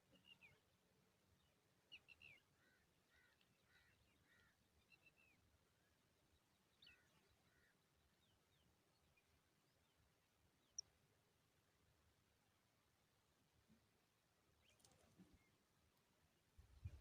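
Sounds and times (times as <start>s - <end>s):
small birds chirping: 0.0s - 11.0s, 14.5s - 15.7s.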